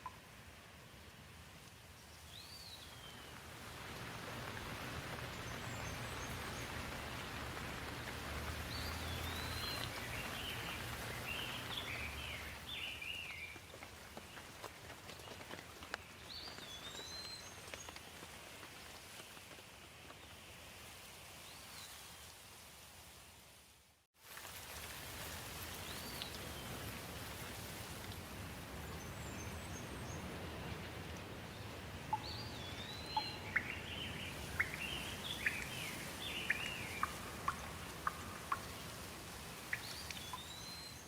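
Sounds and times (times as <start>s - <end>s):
rain falling: 2.4s - 21.0s, 24.2s - 41.0s
water drips: 2.8s - 18.3s, 24.3s - 29.0s, 31.0s - 41.0s
bird chirping: 8.7s - 13.6s, 32.1s - 38.9s, 39.7s - 41.0s.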